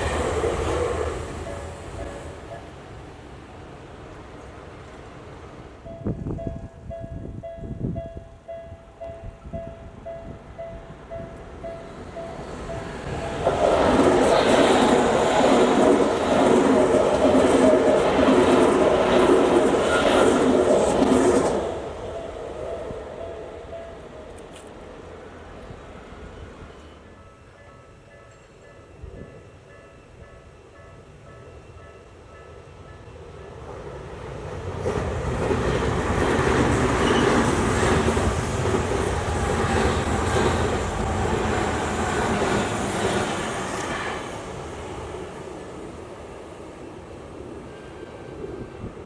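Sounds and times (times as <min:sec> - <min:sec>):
electric train rumbling past: 0:00.0 - 0:49.0
crossing warning bell: 0:01.4 - 0:02.8, 0:05.8 - 0:13.2, 0:22.1 - 0:24.4, 0:26.2 - 0:33.6, 0:36.3 - 0:38.2.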